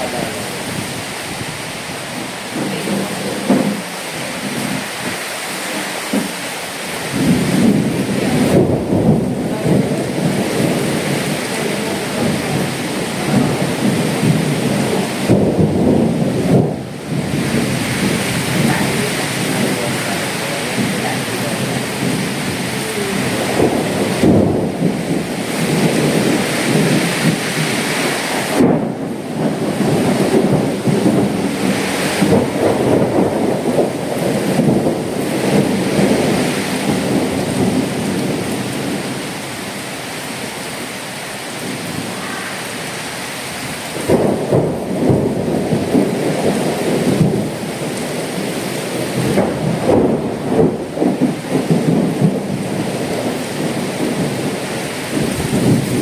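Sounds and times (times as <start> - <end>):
heavy rain: 0.0 - 56.0
strong gusting wind: 0.0 - 56.0.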